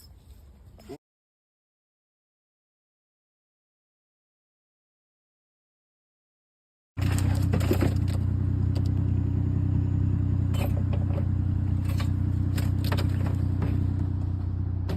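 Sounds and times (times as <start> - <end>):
low machine hum: 7.0 - 14.9.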